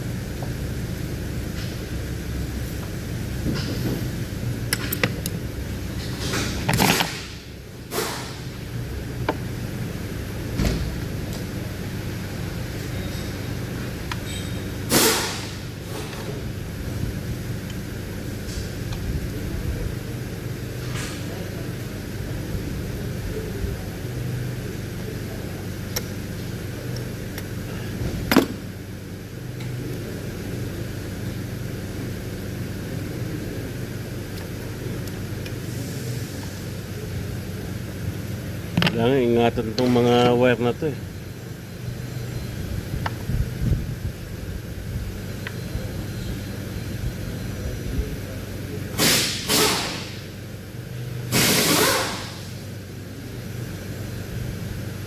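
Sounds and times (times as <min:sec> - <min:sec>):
low mechanical hum: 0:00.0 - 0:55.0
pressurised gas hissing: 0:49.0 - 0:50.0.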